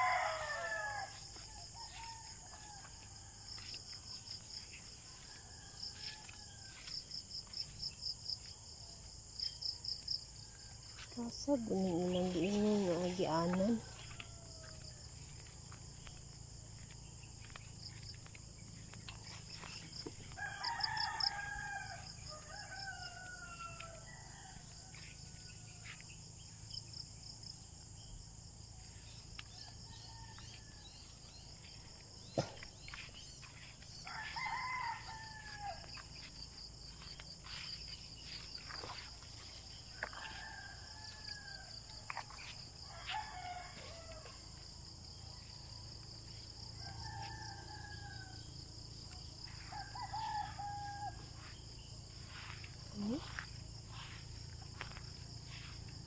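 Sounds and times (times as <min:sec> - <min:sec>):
roosters crowing: 0:00.0 - 0:03.6, 0:20.3 - 0:25.8, 0:34.0 - 0:36.2, 0:39.8 - 0:42.1, 0:42.7 - 0:45.2, 0:46.5 - 0:48.8, 0:49.4 - 0:52.6
insects chorus: 0:00.0 - 0:56.0.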